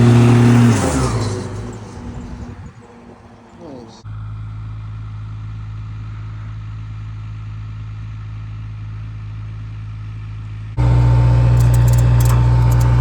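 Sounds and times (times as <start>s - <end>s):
vehicle engine drone: 0.0s - 13.0s
high ticks: 10.8s - 13.0s
thin steady whine: 10.8s - 13.0s.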